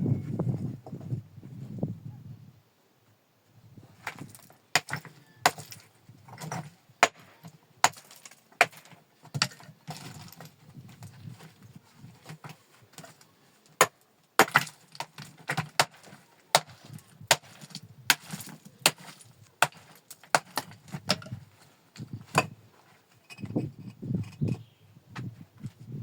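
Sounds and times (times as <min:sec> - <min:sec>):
sharp irregular knocks and cracks: 0:04.0 - 0:11.6, 0:12.2 - 0:21.4.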